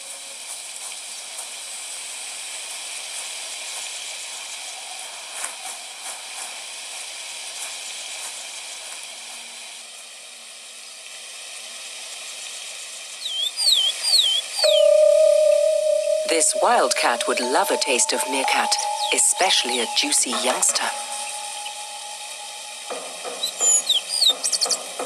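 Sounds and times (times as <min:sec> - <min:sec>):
high-pitched outdoor hiss: 0:00.0 - 0:25.0
whistled calls sweeping up and down: 0:13.3 - 0:25.0.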